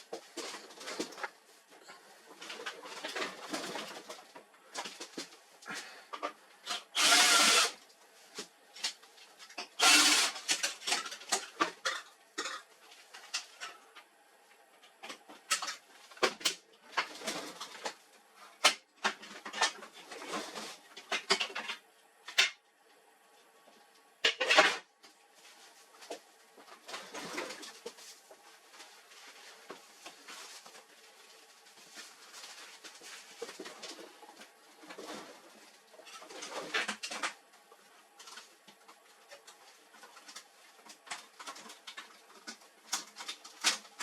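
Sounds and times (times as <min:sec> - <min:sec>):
rasping bursts: 0:07.0 - 0:07.8, 0:09.8 - 0:10.4
tools and printer parts clattering: 0:08.8 - 0:13.8, 0:15.0 - 0:22.6, 0:24.2 - 0:24.8, 0:34.8 - 0:37.5.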